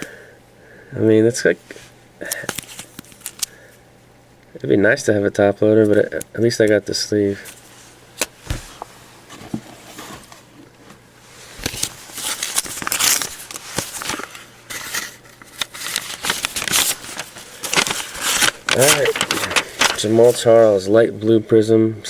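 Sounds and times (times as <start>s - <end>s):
packaging crinkling: 2.2s - 3.6s, 11.5s - 20.5s.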